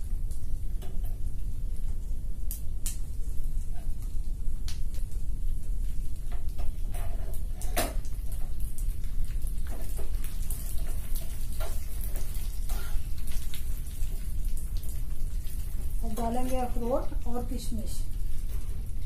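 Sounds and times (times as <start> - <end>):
nuts frying with crackles and pops: 0.0 - 19.0
spoon stirring and scraping a pan: 9.7 - 13.1.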